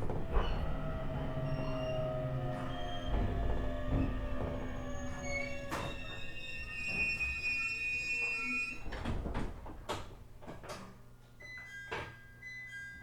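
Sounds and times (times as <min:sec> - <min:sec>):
train knocks and clunks: 0:00.0 - 0:07.4
electric train high whine: 0:00.0 - 0:09.0.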